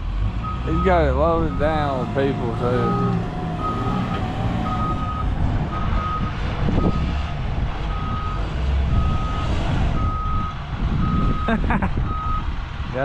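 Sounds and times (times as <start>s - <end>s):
low engine rumble: 0.0s - 13.0s
backup alarm beeping: 0.7s - 7.1s.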